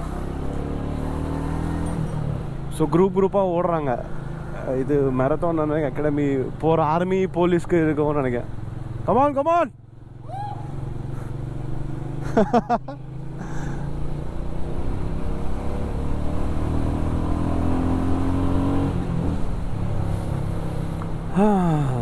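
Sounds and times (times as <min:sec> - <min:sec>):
motorcycle engine accelerating: 0:00.0 - 0:02.4, 0:10.0 - 0:22.0.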